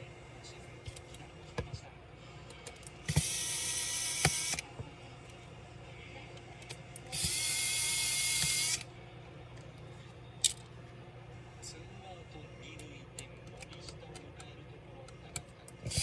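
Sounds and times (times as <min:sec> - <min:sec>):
electric screwdriver running: 0:03.0 - 0:04.7, 0:07.1 - 0:08.9.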